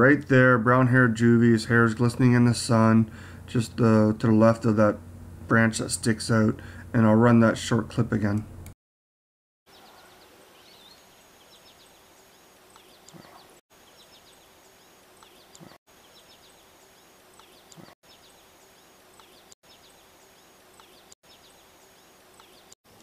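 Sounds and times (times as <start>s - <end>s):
small birds chirping: 9.7s - 23.0s.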